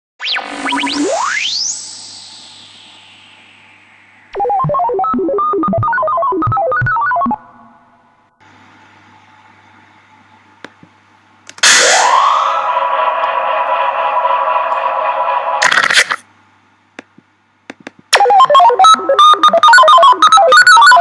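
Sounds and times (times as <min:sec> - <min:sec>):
rising tone: 0:00.2 - 0:06.7, 0:11.6 - 0:15.6.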